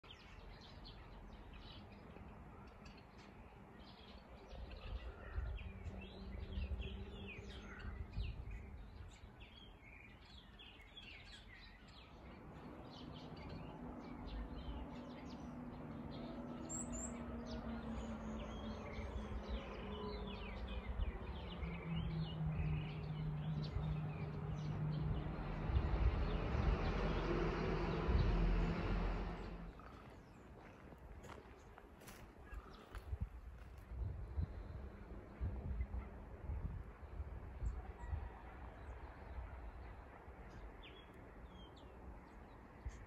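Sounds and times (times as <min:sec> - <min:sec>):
small birds chirping: 0:00.0 - 0:36.2
low rumbling noise: 0:12.2 - 0:31.7.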